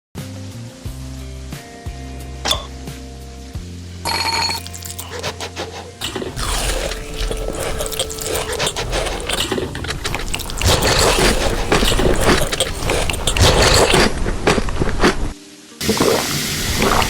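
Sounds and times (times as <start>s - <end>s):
utensils scraping a bowl of noodles: 4.4s - 15.4s.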